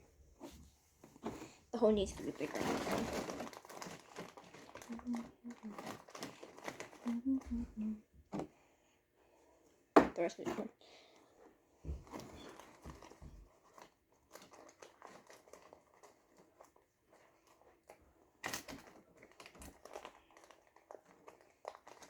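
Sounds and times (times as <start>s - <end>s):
slime crinkling and crackling: 1.8s - 7.8s, 12.1s - 22.0s.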